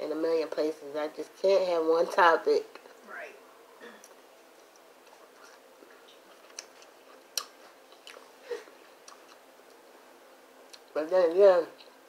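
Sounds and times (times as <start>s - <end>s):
quiet chewing of noodles: 4.0s - 9.9s.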